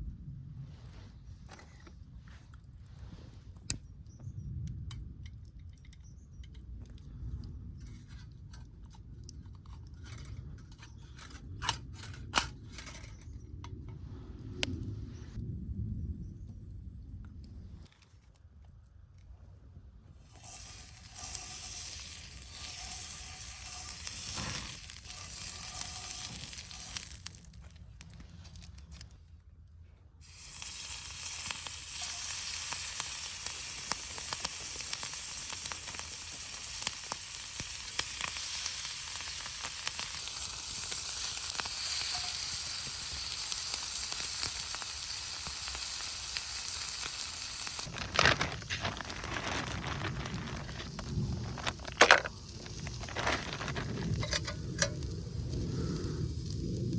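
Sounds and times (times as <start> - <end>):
food sizzling in a frying pan: 20.2 - 27.5, 30.2 - 49.9.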